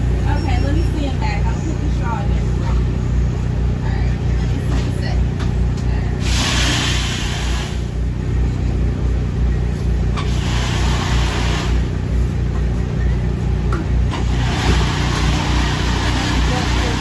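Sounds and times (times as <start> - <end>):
low engine drone: 0.0 - 17.0
bursts of hissing noise: 6.2 - 8.0, 10.2 - 12.0.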